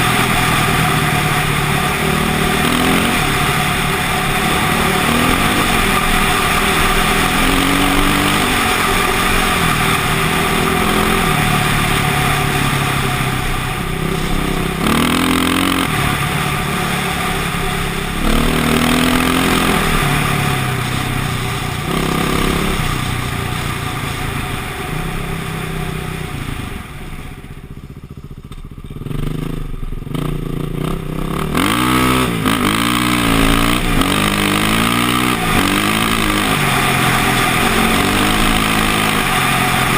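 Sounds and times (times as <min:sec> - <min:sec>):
dirt bike engine revving: 0:00.0 - 0:26.8, 0:28.8 - 0:39.9.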